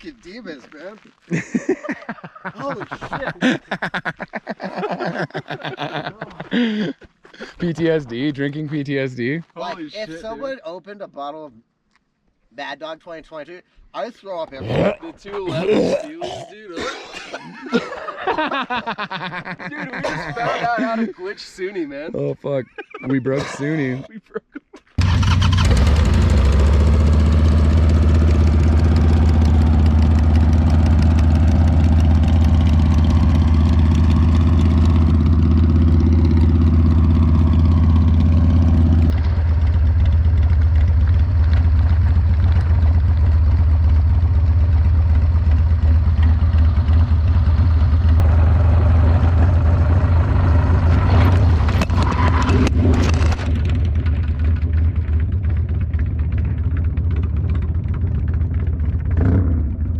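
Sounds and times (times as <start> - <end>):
motorcycle engines droning: 25.0 - 59.9.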